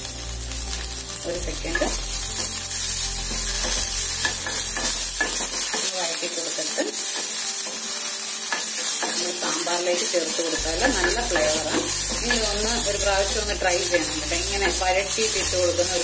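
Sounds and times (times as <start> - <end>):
leaves sizzling in a hot pan: 0.0 - 16.0
spoon scraping pan: 10.0 - 15.4.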